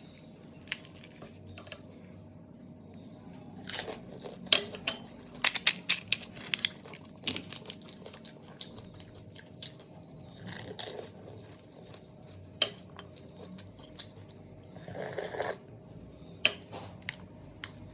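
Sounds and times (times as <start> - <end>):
crisp shells crunching: 0.6 - 1.4, 3.6 - 4.3, 5.2 - 8.2.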